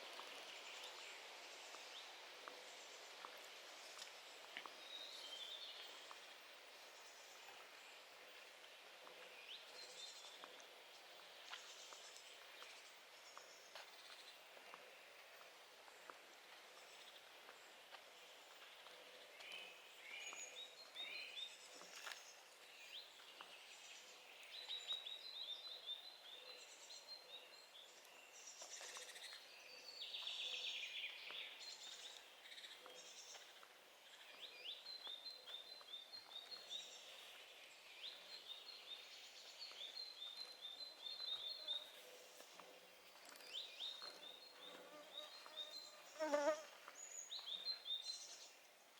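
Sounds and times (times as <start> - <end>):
songbirds chirping: 0.0 - 48.9.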